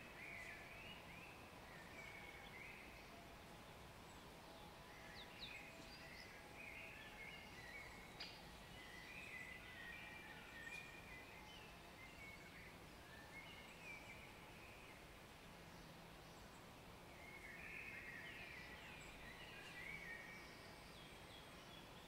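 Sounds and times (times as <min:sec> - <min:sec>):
small birds singing and chirping: 0:00.0 - 0:22.0
steady background hiss: 0:00.0 - 0:22.0.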